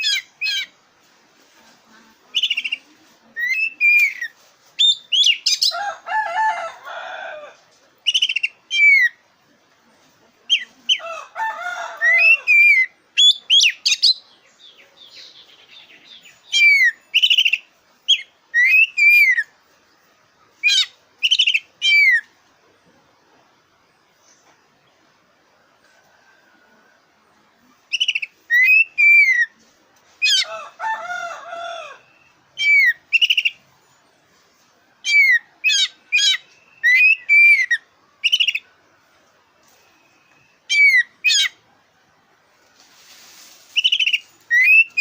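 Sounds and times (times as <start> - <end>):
bird singing whistled phrases: 3.4 - 5.7, 16.2 - 19.4, 27.9 - 29.5, 35.1 - 38.6, 43.8 - 45.0.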